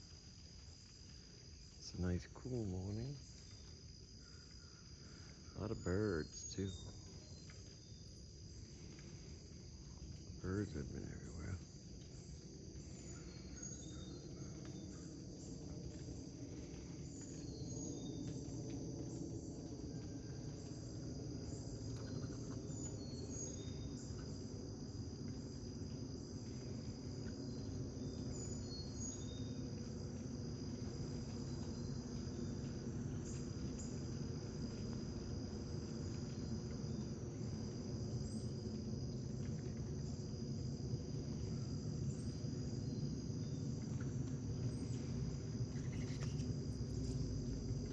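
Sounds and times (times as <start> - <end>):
crickets chirping: 0.0 - 47.9
low steady rumble: 0.0 - 47.9
bird chirps: 45.7 - 46.5.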